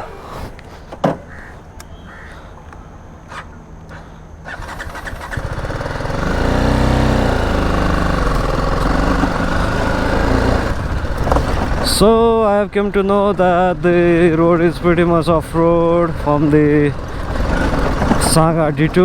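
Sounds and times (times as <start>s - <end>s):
motorcycle engine revving: 4.4s - 19.0s.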